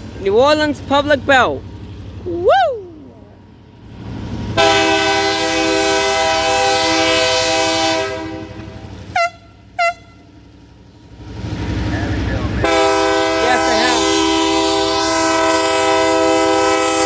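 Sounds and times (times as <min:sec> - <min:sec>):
short horn toots: 0:04.6 - 0:10.3
locomotive horn chord: 0:04.6 - 0:10.4, 0:12.6 - 0:17.0.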